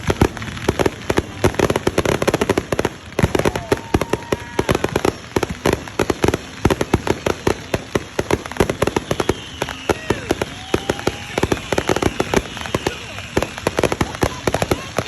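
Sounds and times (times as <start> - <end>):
firework whistle: 0.0 - 15.0
fireworks bangs and pops: 0.0 - 15.0.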